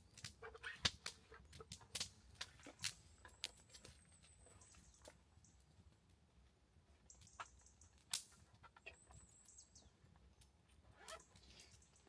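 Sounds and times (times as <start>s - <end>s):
faint high bird chirps: 8.8s - 10.1s.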